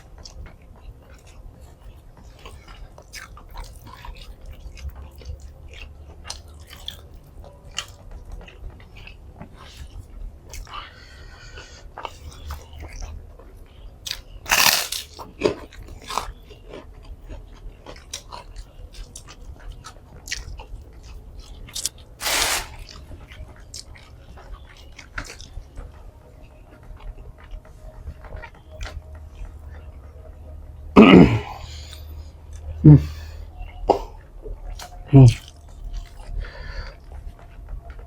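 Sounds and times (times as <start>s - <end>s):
chewing with mouth clicks: 0.0s - 30.1s, 31.7s - 38.0s
crunchy bites: 14.1s - 15.4s, 21.8s - 23.0s.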